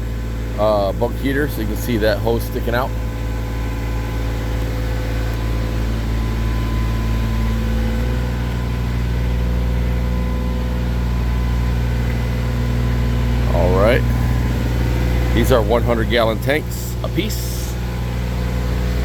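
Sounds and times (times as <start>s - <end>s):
truck diesel engine idling: 0.0s - 19.0s.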